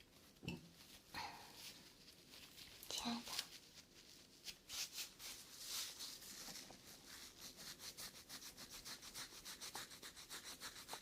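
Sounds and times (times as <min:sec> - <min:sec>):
rapid rubbing on microphone: 0:03.6 - 0:11.0.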